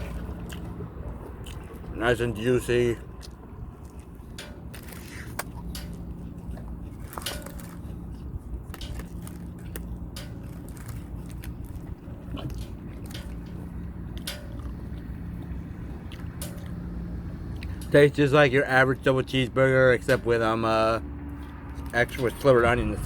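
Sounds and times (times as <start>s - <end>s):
person chewing: 0.0s - 2.0s, 3.0s - 17.8s
steady low hum: 0.0s - 23.0s.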